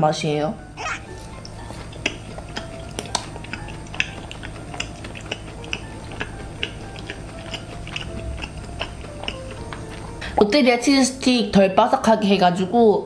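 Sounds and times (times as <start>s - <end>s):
chewing with wet clicks: 1.2s - 10.2s.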